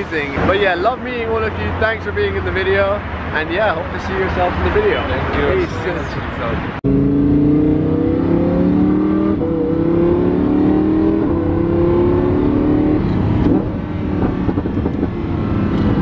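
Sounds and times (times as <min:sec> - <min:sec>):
car engine accelerating hard: 0:06.8 - 0:16.0.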